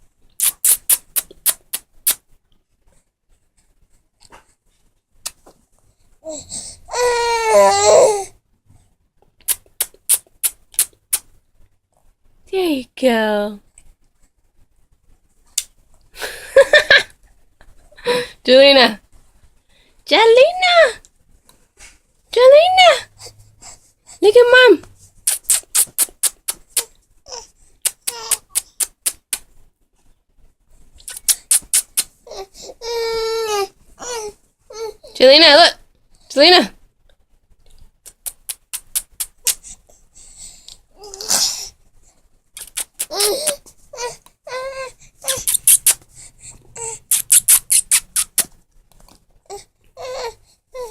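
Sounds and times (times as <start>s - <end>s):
kissing lip smacks: 0.4s - 2.2s, 5.2s - 5.5s, 9.4s - 11.4s, 15.5s - 15.8s, 25.2s - 27.0s, 27.8s - 29.5s, 31.0s - 32.2s, 38.0s - 39.7s, 42.6s - 43.7s, 45.2s - 46.1s, 47.1s - 48.6s
baby squealing: 6.9s - 8.2s, 26.8s - 28.8s, 42.6s - 46.0s, 46.8s - 48.5s.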